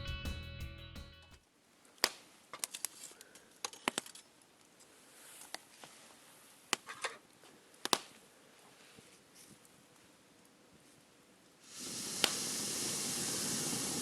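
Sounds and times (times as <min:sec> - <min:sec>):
campfire crackling: 0:11.7 - 0:14.0.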